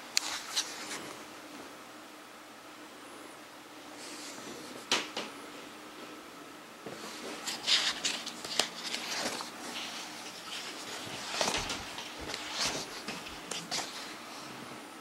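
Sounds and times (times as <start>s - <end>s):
book pages turning: 0.2s - 1.1s, 6.9s - 14.2s
paper rustling and crackling: 0.2s - 1.2s, 6.9s - 14.2s.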